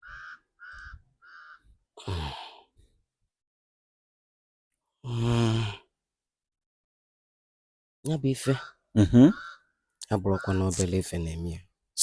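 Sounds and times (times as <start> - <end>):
caw-like bird calls: 0.0 - 1.8, 8.4 - 11.0.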